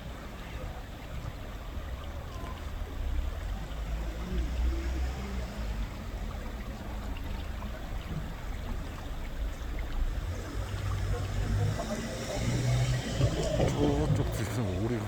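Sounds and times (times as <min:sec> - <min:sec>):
stream water running: 0:00.0 - 0:15.0.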